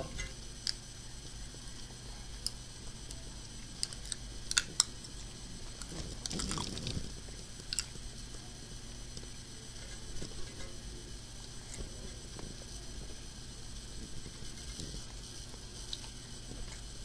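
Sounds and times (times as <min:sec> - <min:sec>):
crunching noise: 0:05.7 - 0:08.0.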